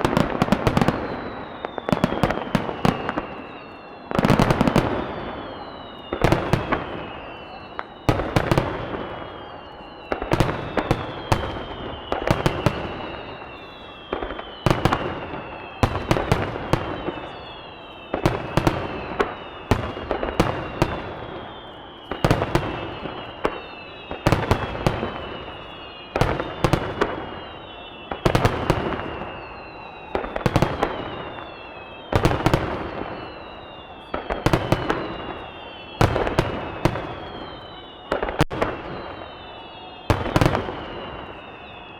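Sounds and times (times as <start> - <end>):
falling firework whistles: 0.0 - 41.9.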